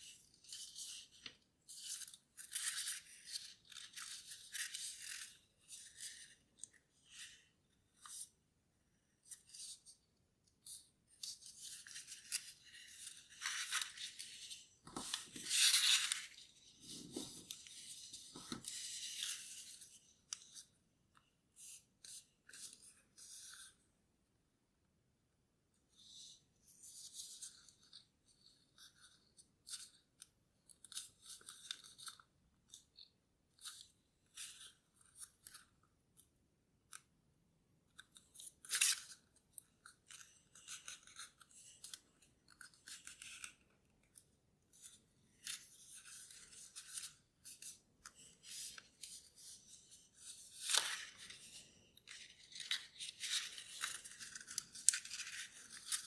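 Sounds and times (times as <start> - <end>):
paper rustling and crinkling: 10.6 - 20.7, 44.7 - 56.0.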